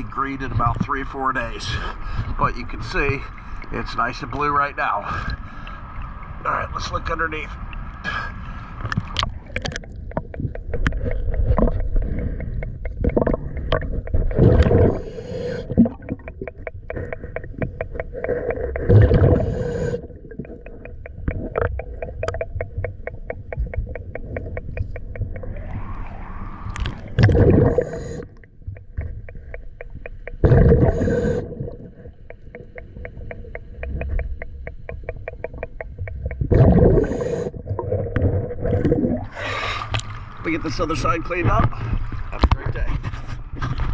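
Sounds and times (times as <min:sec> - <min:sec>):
rapid even ticking: 0:00.0 - 0:05.1, 0:09.2 - 0:37.6
exhaled bubbles rushing underwater: 0:08.8 - 0:42.4.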